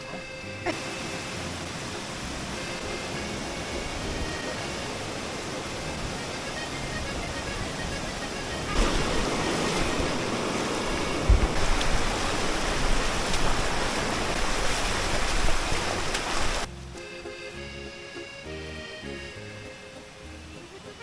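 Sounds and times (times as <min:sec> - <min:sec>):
background music: 0:00.0 - 0:09.6, 0:16.6 - 0:21.0
water rushing: 0:00.0 - 0:16.9
low thump: 0:11.1 - 0:12.0.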